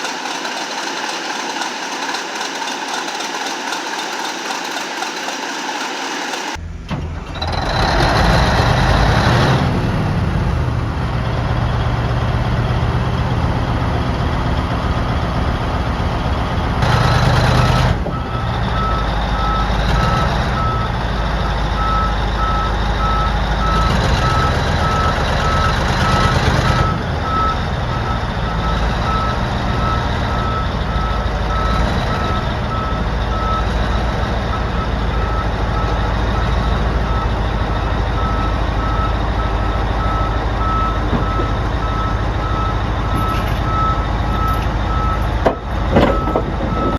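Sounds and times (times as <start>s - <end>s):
diesel engine rumbling: 0.0s - 46.9s
back-up alarm beeping: 21.8s - 46.9s.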